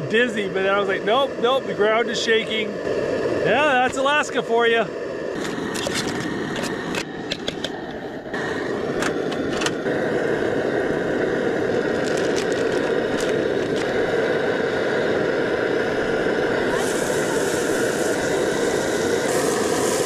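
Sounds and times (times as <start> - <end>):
clicks and scrapes: 5.4 - 7.8
meat sizzling in a pan: 16.7 - 20.0.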